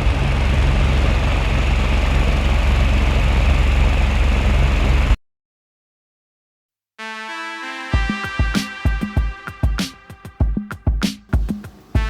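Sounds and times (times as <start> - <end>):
loud motor hum: 0.0 - 5.2.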